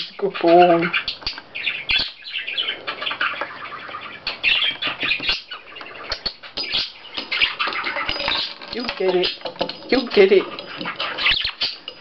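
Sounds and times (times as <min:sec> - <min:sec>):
budgerigar chattering: 0:00.0 - 0:12.0.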